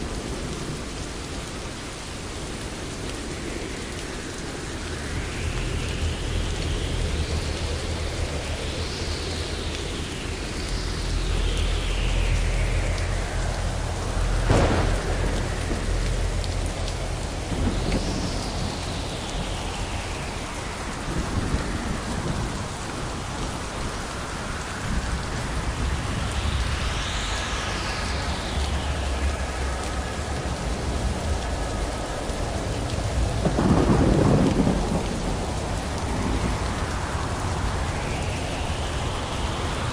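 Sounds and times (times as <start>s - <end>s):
steady rain hissing: 0.0s - 39.9s
low thunder rumbling: 10.0s - 39.9s
sharp crack of thunder: 14.4s - 19.6s, 33.4s - 36.9s.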